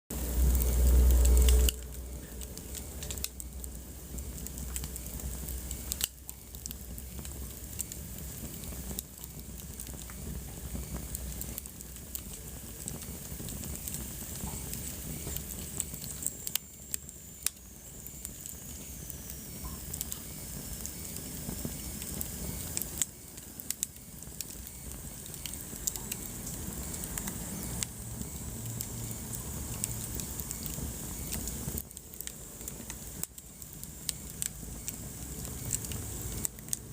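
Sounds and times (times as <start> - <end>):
fire hissing: 0.1 - 36.9
wood fire crackling and popping: 0.1 - 36.9
faint high whistle: 14.5 - 29.2.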